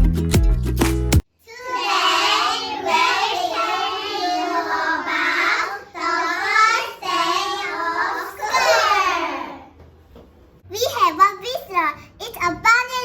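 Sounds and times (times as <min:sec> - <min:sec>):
young children singing: 0:01.5 - 0:09.8.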